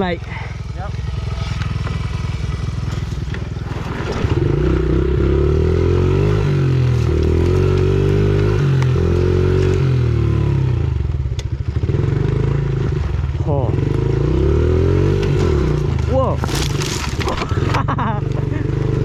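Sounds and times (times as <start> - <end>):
pit bike engine accelerating: 0.9 - 10.7.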